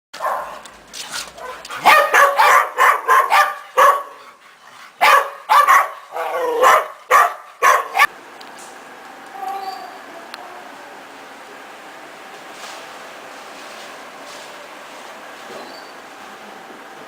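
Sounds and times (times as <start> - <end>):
dogs barking: 0.2 - 8.1.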